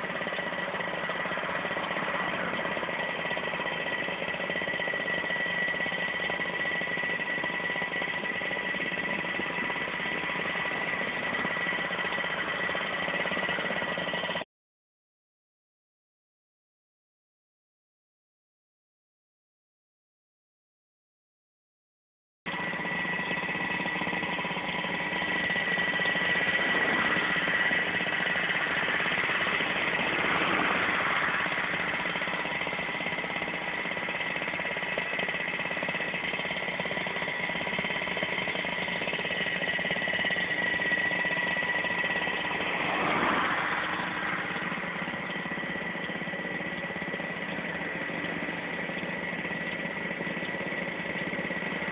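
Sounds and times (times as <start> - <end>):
machine whining and droning: 0.0 - 14.4, 22.5 - 51.9.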